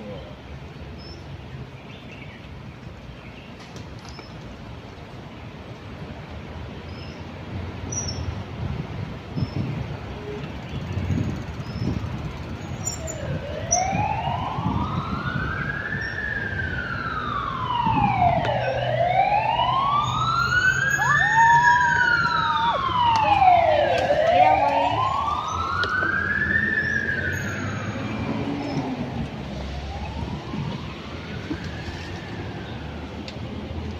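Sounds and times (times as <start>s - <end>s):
low traffic rumble: 0.0s - 33.9s
emergency vehicle siren wailing: 12.7s - 33.5s.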